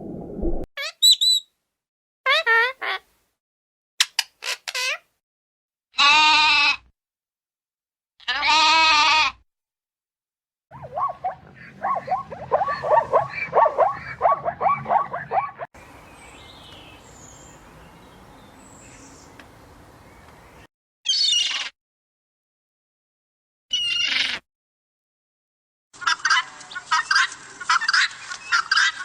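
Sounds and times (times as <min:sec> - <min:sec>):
goat bleating: 0:06.0 - 0:06.8, 0:08.2 - 0:09.4
chattering animal calls: 0:10.7 - 0:15.7.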